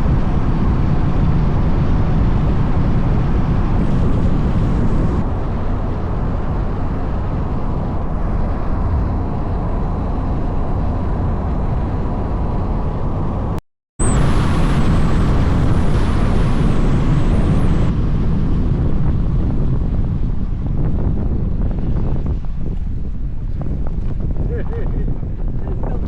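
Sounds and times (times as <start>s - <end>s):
car engine driving: 0.0s - 18.6s
faint high whine: 3.7s - 5.3s, 14.0s - 18.0s.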